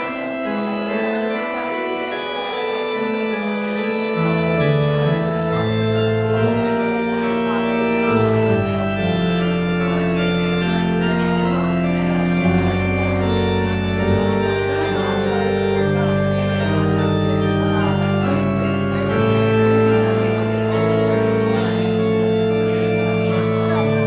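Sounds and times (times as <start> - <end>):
church organ playing chords: 0.0 - 24.0.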